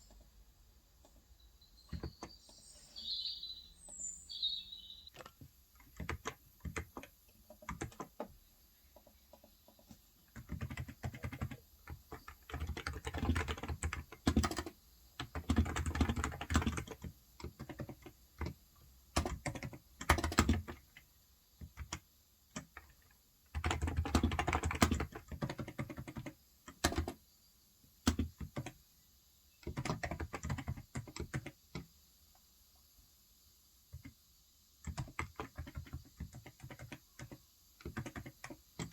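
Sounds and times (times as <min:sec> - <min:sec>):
keyboard typing: 0:01.9 - 0:02.6, 0:05.2 - 0:08.4, 0:09.0 - 0:27.2, 0:28.0 - 0:28.8, 0:29.6 - 0:31.9, 0:34.8 - 0:38.9.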